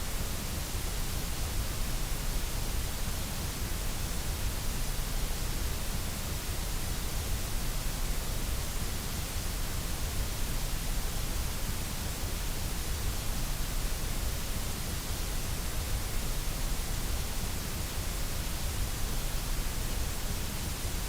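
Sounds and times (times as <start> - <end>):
white noise hiss: 0.0 - 21.0.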